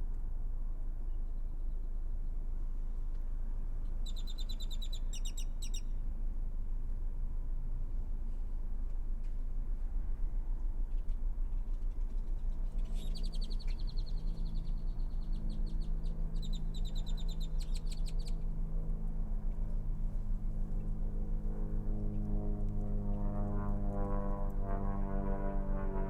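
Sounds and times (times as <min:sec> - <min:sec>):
low engine hum: 0:00.0 - 0:26.0
bird buzzy chattering calls: 0:12.8 - 0:18.4.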